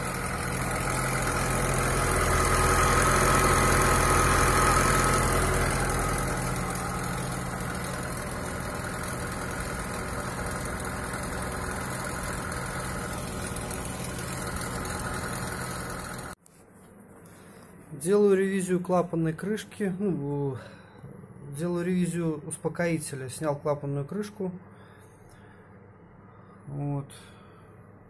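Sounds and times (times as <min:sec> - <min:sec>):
car engine cold start: 0:00.0 - 0:16.4.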